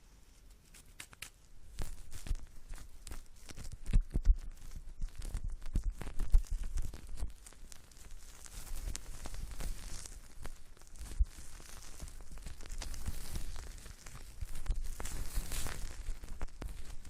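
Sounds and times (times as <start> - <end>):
crackling and scratching on microphone: 0.0 - 17.0
soft low thumps: 1.8 - 7.4.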